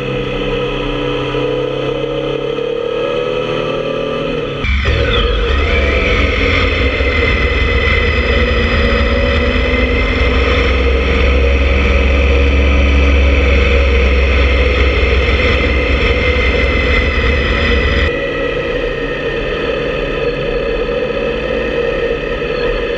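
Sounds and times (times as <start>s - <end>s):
motorcycle engine cruising: 0.0s - 22.9s
wind rumble on microphone: 4.7s - 22.9s.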